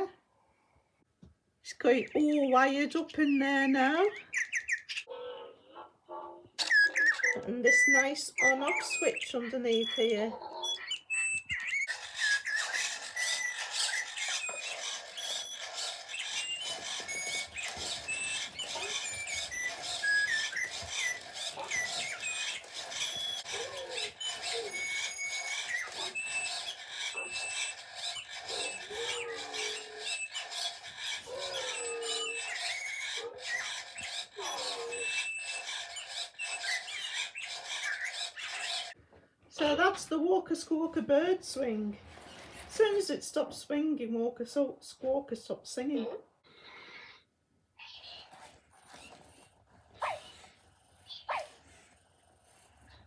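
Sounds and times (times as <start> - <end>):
toy bird chirping and trilling: 3.2 - 5.1, 6.6 - 39.0, 47.8 - 53.0.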